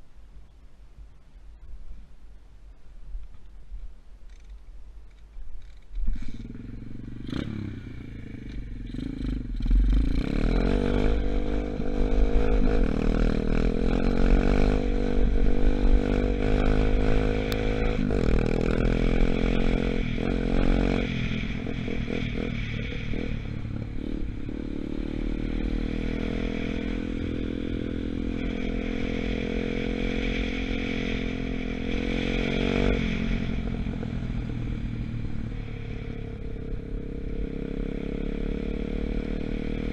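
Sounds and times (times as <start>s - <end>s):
dirt bike engine revving: 6.1s - 39.9s.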